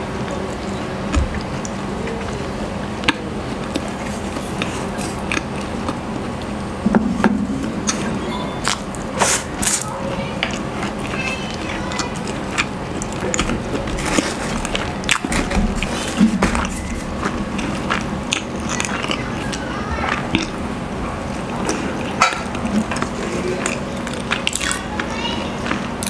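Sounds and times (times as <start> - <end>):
chewing and wet mouth clicks: 3.0 - 6.5, 17.2 - 20.6, 21.3 - 25.8.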